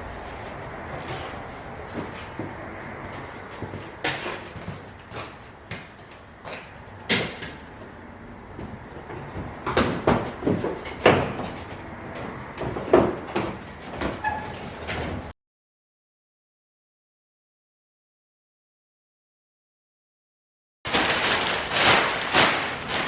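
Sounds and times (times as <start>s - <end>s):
car parts and tools knocking: 1.0s - 14.3s.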